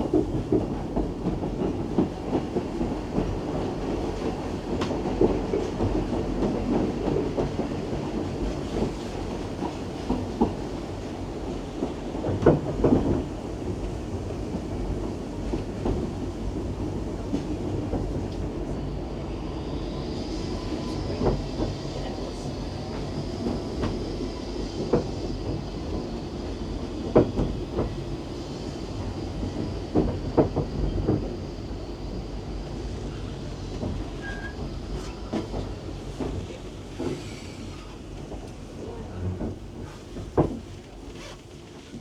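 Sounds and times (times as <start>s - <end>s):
train rumbling: 0.0s - 42.0s
faint high wheel squeal: 34.1s - 35.4s.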